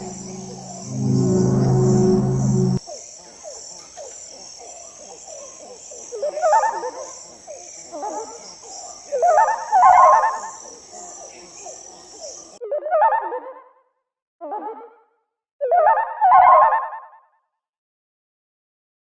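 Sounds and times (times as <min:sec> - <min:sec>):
warbling chirped calls: 0:00.0 - 0:02.8
crickets chirping: 0:00.0 - 0:12.6.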